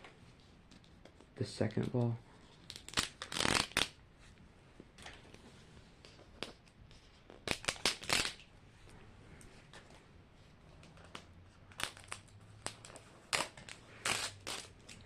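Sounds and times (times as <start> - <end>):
plastic packaging crinkling: 11.0 - 15.0.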